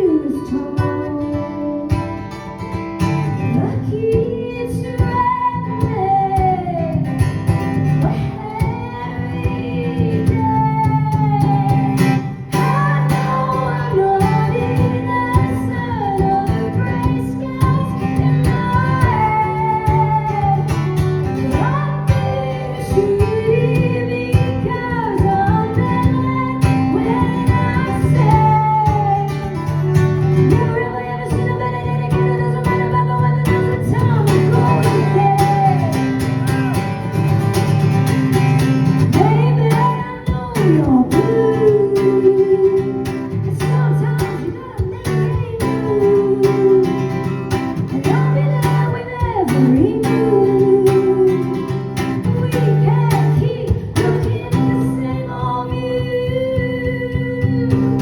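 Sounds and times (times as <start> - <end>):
strummed acoustic guitar: 0.0 - 58.0
woman singing: 0.0 - 58.0
bass and drums: 5.0 - 42.3, 51.9 - 58.0.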